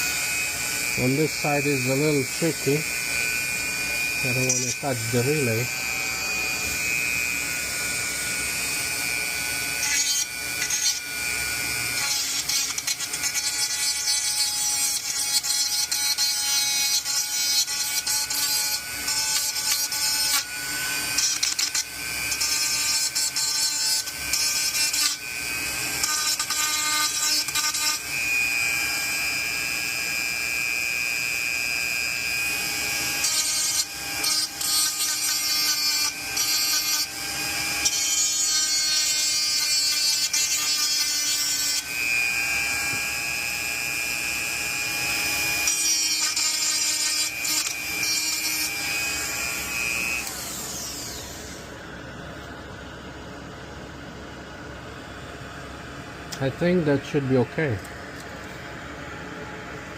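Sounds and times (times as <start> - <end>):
rotary tool whining: 0.0 - 52.0
bit scraping metal: 3.9 - 5.9.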